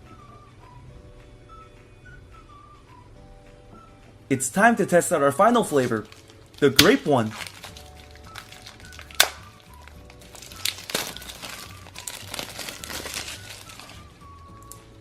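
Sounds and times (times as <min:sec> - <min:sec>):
soft background music: 0:00.0 - 0:15.0
plastic packaging crinkling: 0:05.5 - 0:14.8.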